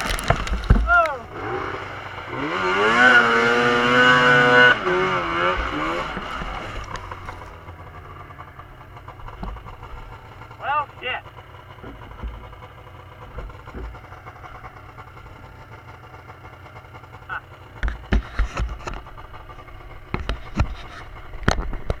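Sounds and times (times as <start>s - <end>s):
sharp knocks and thumps: 0.0s - 1.4s, 9.2s - 10.4s, 11.7s - 15.7s, 17.8s - 22.0s
snowmobile engine idling: 0.0s - 22.0s.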